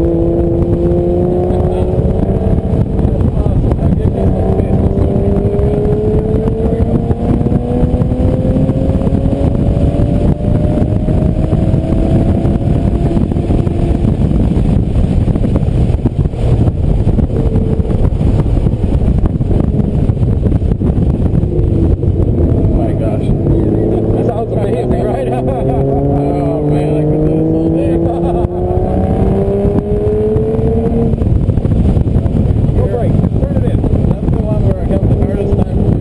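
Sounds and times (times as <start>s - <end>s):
car engine accelerating: 0.0s - 36.0s
road and wind noise: 0.0s - 36.0s.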